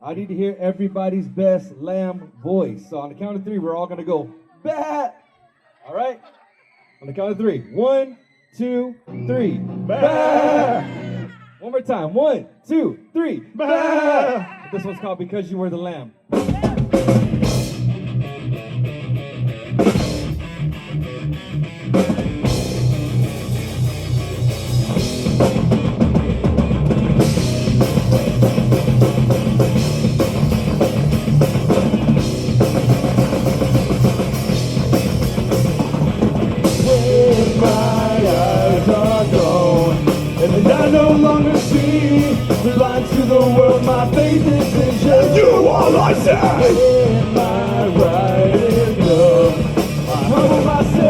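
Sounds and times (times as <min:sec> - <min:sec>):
bass guitar: 0:09.0 - 0:11.4, 0:16.3 - 0:51.0
drum kit: 0:16.3 - 0:51.0
electric guitars: 0:16.9 - 0:51.0.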